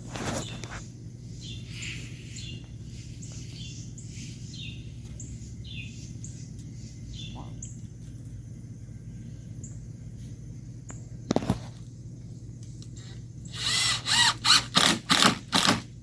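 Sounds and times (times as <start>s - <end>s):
steady low hum: 0.0s - 16.0s
bird chirping: 0.3s - 7.9s.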